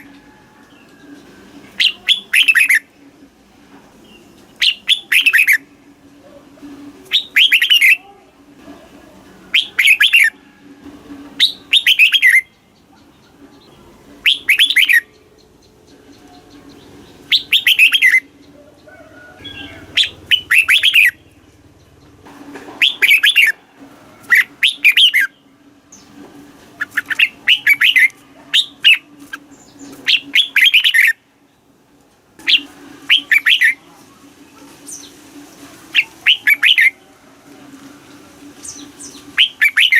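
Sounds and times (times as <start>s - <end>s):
bird warbling song: 0.0s - 2.9s, 4.0s - 5.7s, 7.0s - 8.0s, 9.5s - 10.4s, 11.4s - 23.6s, 24.2s - 31.2s, 32.4s - 33.9s, 35.9s - 37.0s, 38.6s - 39.9s.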